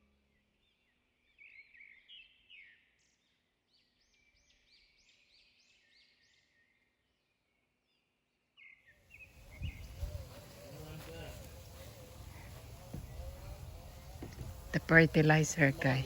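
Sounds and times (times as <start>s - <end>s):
small bird chirping: 8.6s - 16.0s.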